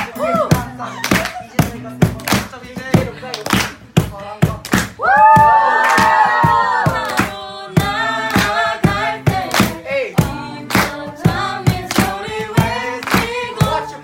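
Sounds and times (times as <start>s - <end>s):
sharp beat keeping time: 1.6s - 14.0s
group singing a praise song: 5.4s - 14.0s.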